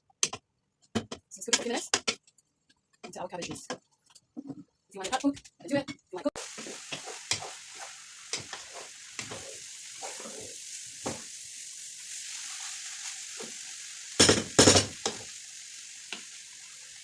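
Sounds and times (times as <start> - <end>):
vegetables sizzling in a frying pan: 6.4 - 17.0.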